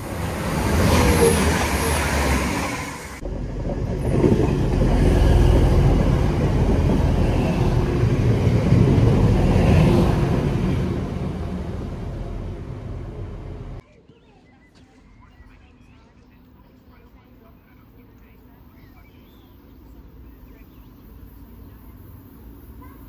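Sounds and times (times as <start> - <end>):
wheel-on-rail rumble: 0.0 - 13.8
diesel engine drone: 3.2 - 13.8.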